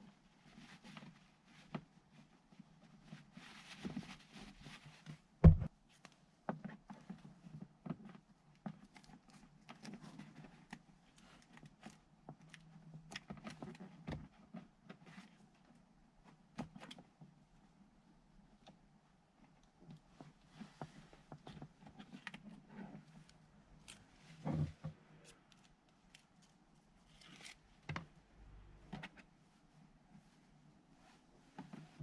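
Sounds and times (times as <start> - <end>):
loud thump: 5.4 - 5.7.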